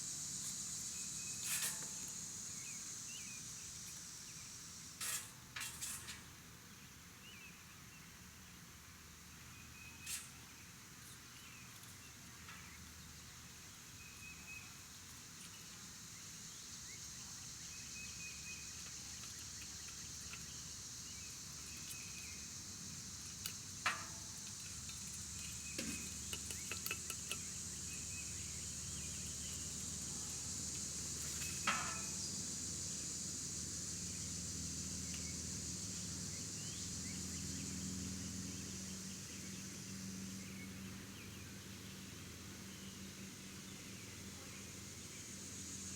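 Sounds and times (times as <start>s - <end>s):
high insect drone: 0.0s - 5.7s, 13.5s - 41.4s
sharp clicks and knocks: 23.4s - 27.5s.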